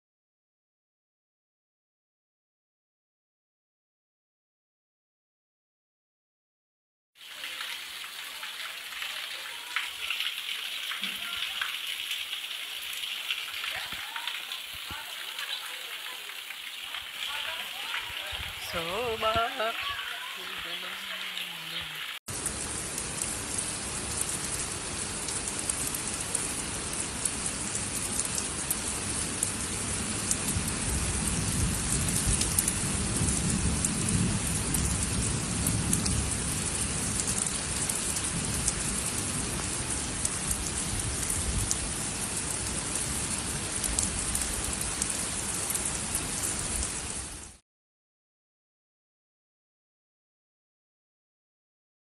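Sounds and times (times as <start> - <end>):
heavy rain on concrete roof: 7.2 - 47.6.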